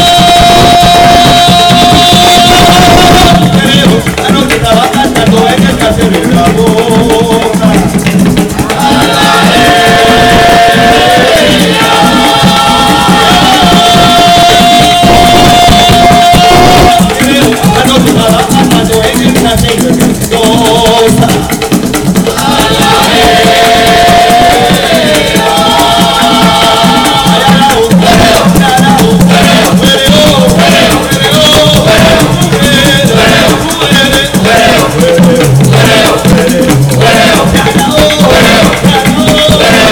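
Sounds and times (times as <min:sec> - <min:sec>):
voices singing long notes: 0:00.0 - 0:04.0, 0:08.6 - 0:17.5, 0:22.3 - 0:39.9
drums: 0:00.0 - 0:39.9
maracas shaking: 0:00.0 - 0:39.9.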